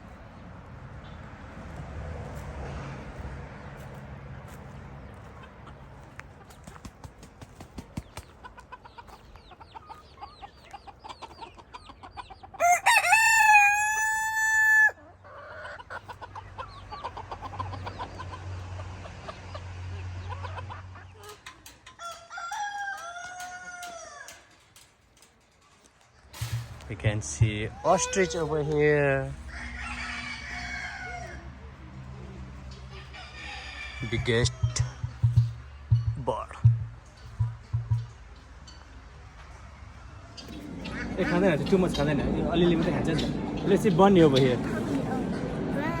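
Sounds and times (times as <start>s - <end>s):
hens clucking: 3.2s - 46.0s
rooster crowing: 12.6s - 15.1s, 22.0s - 24.6s, 27.7s - 28.8s, 29.4s - 31.6s, 32.9s - 35.6s.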